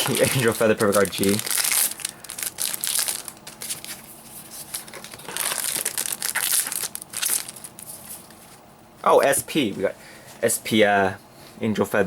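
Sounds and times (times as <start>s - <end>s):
foil wrappers crinkling and tearing: 0.0s - 8.0s.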